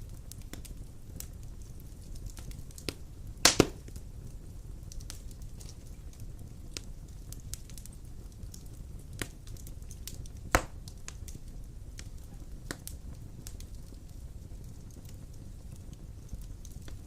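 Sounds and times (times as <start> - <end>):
fire crackling: 0.0 - 17.0
wood fire rumbling: 0.0 - 17.0
loud pop of fire: 1.9 - 4.1, 9.1 - 11.4.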